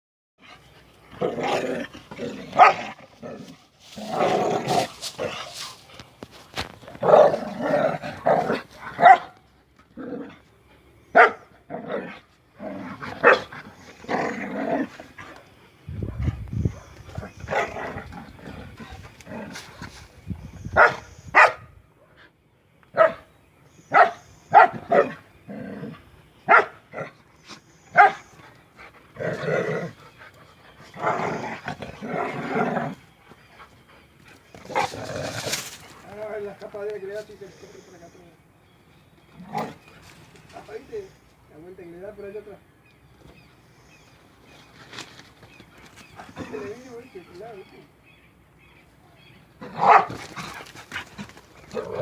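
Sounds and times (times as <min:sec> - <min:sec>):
dogs growling: 0:00.4 - 0:06.0, 0:06.8 - 0:10.6, 0:11.5 - 0:19.9, 0:24.7 - 0:26.1, 0:28.3 - 0:36.6, 0:39.3 - 0:40.9, 0:45.8 - 0:47.5, 0:49.6 - 0:52.0
dogs barking: 0:02.5 - 0:03.0, 0:08.1 - 0:09.4, 0:11.1 - 0:11.5, 0:13.2 - 0:13.6, 0:20.8 - 0:21.7, 0:22.9 - 0:23.3, 0:23.9 - 0:25.2, 0:26.5 - 0:27.1, 0:27.9 - 0:28.3, 0:49.6 - 0:51.1.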